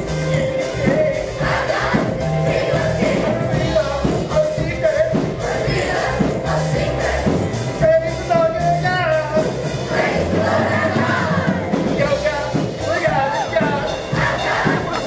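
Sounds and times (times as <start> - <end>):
band playing: 0.0 - 15.0
held bass notes: 0.0 - 15.0
group singing worship song: 1.0 - 3.8, 5.3 - 7.6, 9.8 - 11.8, 14.1 - 15.0.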